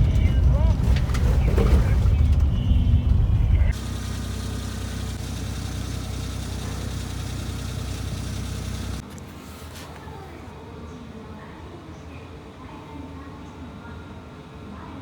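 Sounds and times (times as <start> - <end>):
car engine idling: 0.0 - 9.0.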